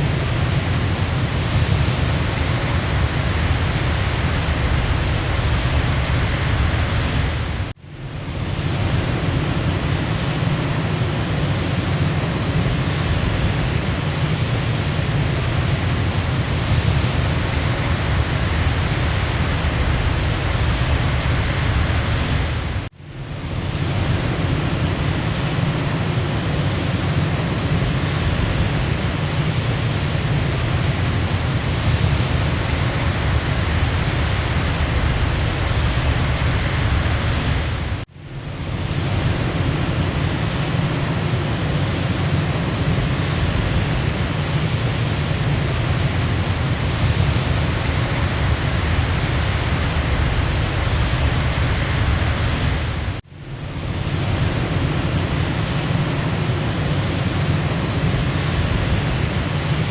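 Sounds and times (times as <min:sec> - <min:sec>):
waterfall roaring: 0:38.6 - 0:53.2.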